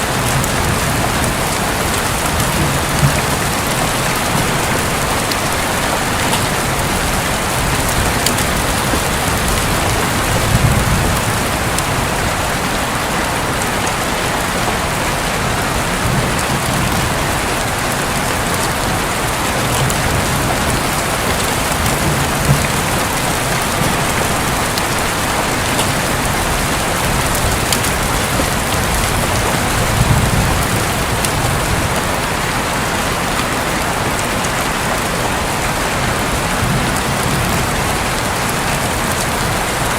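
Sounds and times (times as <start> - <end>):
heavy rain drumming on a roof: 0.0 - 39.9.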